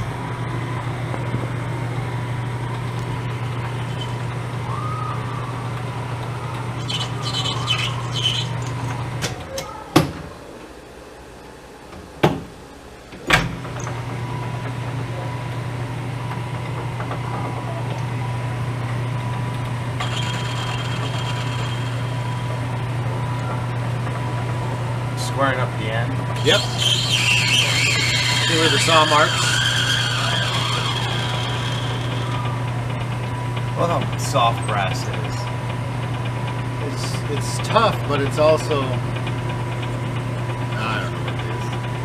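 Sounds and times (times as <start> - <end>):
lathe motor humming: 0.0 - 4.8, 5.4 - 9.2, 18.3 - 42.0.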